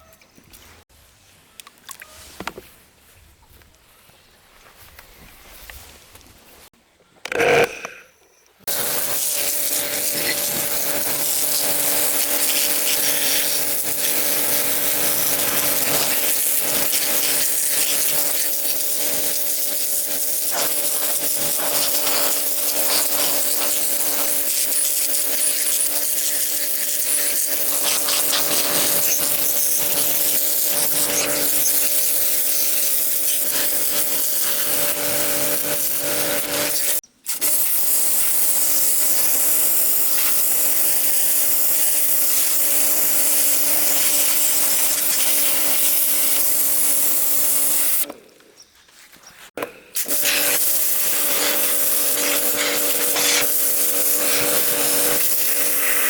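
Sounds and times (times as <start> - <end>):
power tool motor hum: 7.3 - 8.1, 8.7 - 37.0, 50.0 - 56.0.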